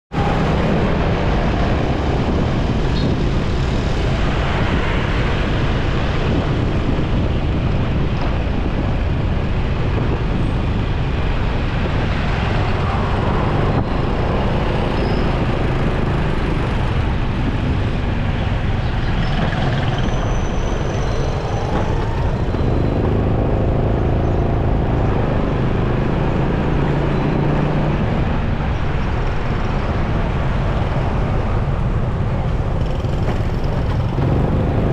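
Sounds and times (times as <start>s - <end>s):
motorcycle engine hum: 0.1s - 34.9s
traffic noise: 0.1s - 34.9s
wind: 0.1s - 34.9s
nearby vehicle engine: 32.5s - 34.9s.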